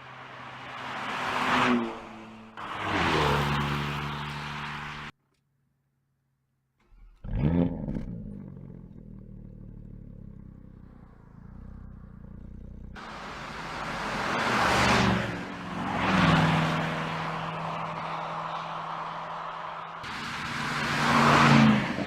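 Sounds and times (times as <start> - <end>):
car engine starting and idling: 6.8 - 22.0.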